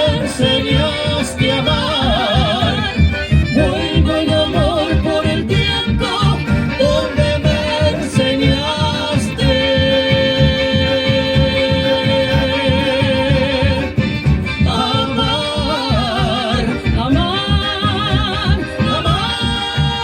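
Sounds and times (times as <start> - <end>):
person singing long notes: 0.0 - 14.0
strummed guitar and bass beat: 0.0 - 20.0.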